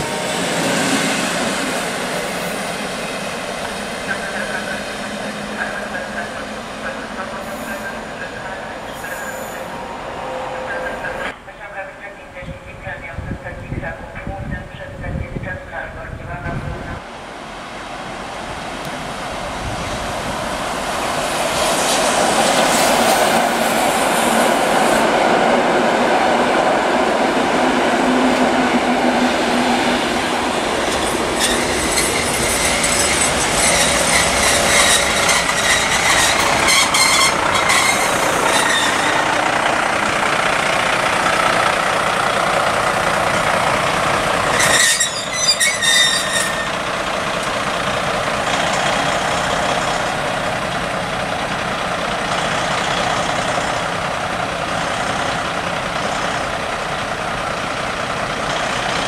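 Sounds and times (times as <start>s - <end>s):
loud vehicle noise: 26.9s - 59.0s
high squealing tones: 31.4s - 39.5s, 44.5s - 46.8s.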